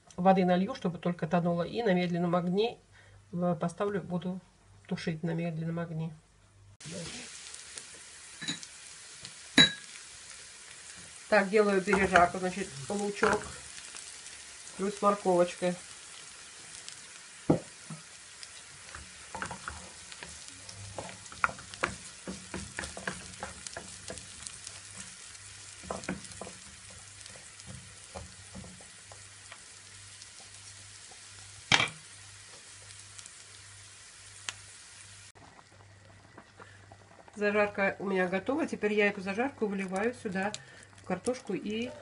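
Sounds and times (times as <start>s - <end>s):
vegetables sizzling in a frying pan: 6.8s - 42.0s
spatula scraping and tapping pan: 11.8s - 12.4s, 18.9s - 29.6s.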